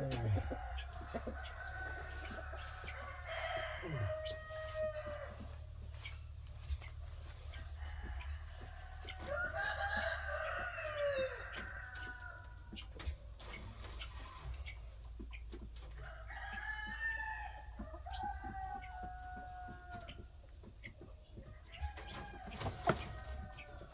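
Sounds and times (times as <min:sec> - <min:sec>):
rooster crowing: 0:00.0 - 0:05.6, 0:07.6 - 0:12.4
chickens clucking: 0:00.0 - 0:23.9.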